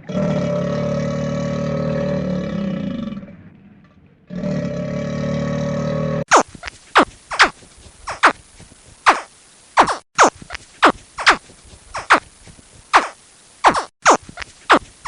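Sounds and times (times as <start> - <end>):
large animal roaring: 0.0 - 6.3.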